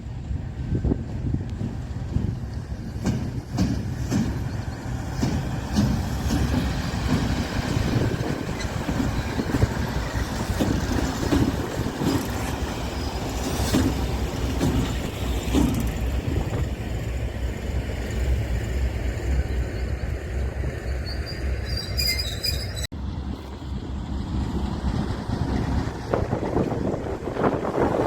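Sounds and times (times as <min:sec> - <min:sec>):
train wagons rumbling past: 0:00.0 - 0:28.0
high wheel squeal: 0:12.2 - 0:13.8, 0:19.5 - 0:22.9.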